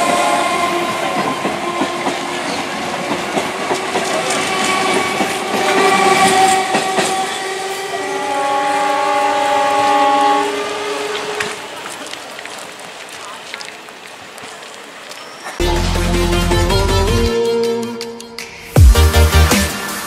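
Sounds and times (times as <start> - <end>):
train horn long blast: 0.0 - 2.3, 4.3 - 11.7, 15.6 - 18.4
train wheels clattering over rail joints: 0.8 - 7.9.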